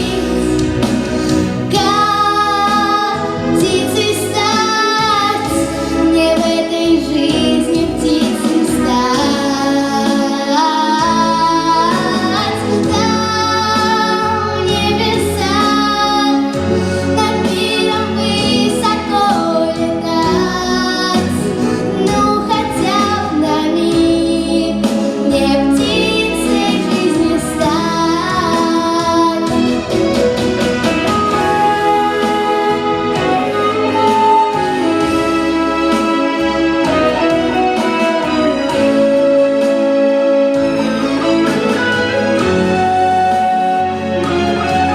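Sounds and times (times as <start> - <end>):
instrumental accompaniment: 0.0 - 44.9
girl singing: 1.7 - 16.5, 17.2 - 29.6.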